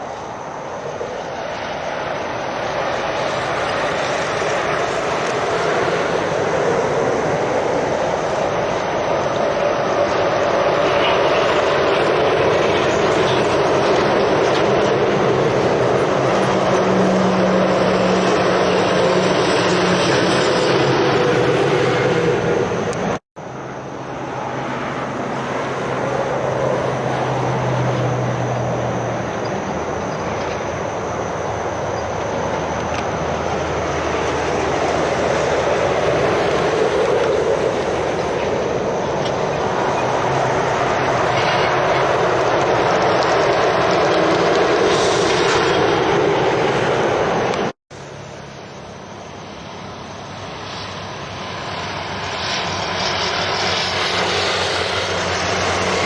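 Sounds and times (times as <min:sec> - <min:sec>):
diesel engines humming: 0:00.0 - 0:56.0
lorry tyre and road noise: 0:00.0 - 0:56.0.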